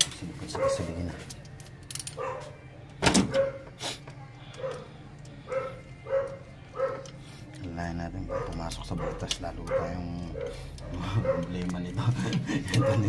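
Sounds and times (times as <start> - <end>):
dog barking: 0.5 - 1.0, 2.2 - 2.6, 3.3 - 3.7, 4.6 - 7.2, 8.2 - 11.8, 12.7 - 13.0.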